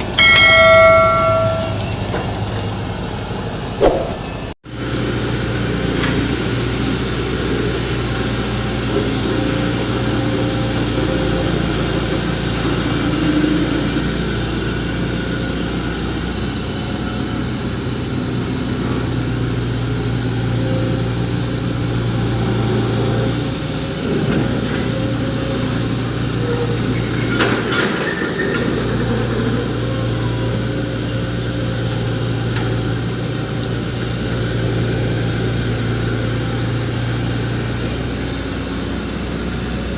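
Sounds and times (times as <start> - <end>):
diesel engine humming: 0.0 - 39.9
short sharp noise: 3.8 - 4.5.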